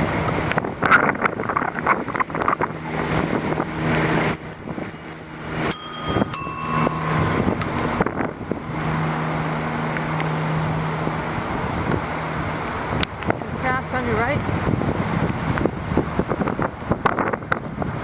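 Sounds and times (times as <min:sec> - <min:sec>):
wind and road noise: 0:00.0 - 0:18.0
low hum: 0:01.5 - 0:13.6
bicycle bell dings: 0:04.3 - 0:08.3.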